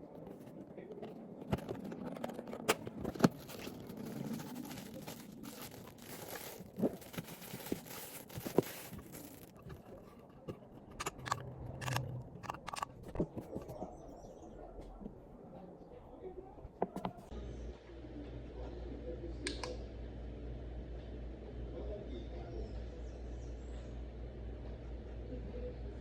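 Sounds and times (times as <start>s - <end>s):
plastic and paper crinkling: 0.0s - 14.0s.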